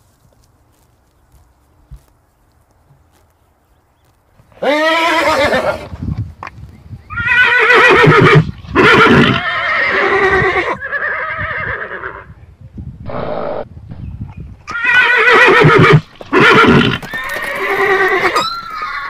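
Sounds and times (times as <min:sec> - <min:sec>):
horse whinnying: 0:04.5 - 0:05.9, 0:07.1 - 0:12.2, 0:14.7 - 0:19.0.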